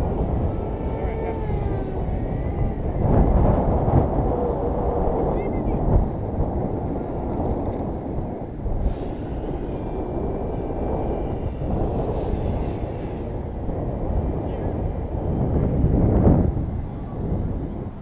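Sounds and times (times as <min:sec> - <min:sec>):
model plane motor whine: 0:00.0 - 0:04.3
wind buffeting microphone: 0:00.0 - 0:18.0.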